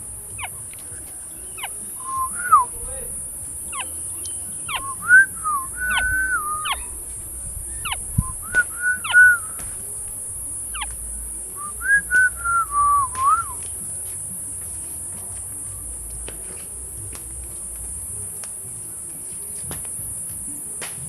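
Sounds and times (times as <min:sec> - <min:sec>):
sharp upward-sweeping bird calls: 0:00.3 - 0:09.8, 0:10.7 - 0:11.0, 0:11.6 - 0:13.7
oriole fluty whistled song: 0:00.3 - 0:10.0, 0:10.7 - 0:14.1.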